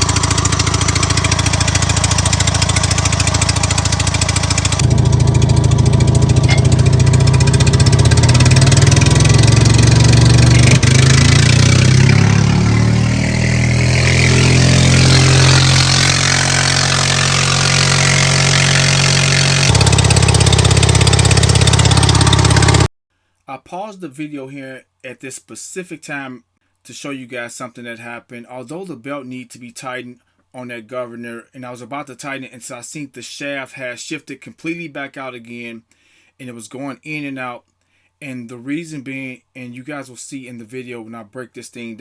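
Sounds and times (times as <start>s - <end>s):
gasoline engine running: 0.0s - 22.9s.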